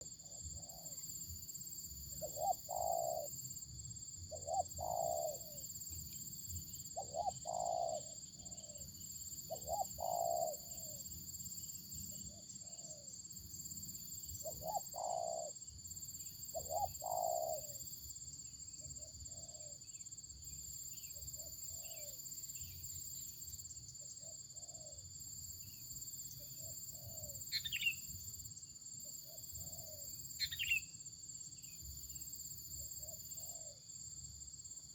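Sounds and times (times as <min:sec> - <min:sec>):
high insect drone: 0:00.0 - 0:34.9
dove cooing: 0:02.2 - 0:03.3, 0:04.3 - 0:05.6, 0:07.0 - 0:08.2, 0:09.5 - 0:11.0, 0:14.4 - 0:15.6, 0:16.5 - 0:17.8.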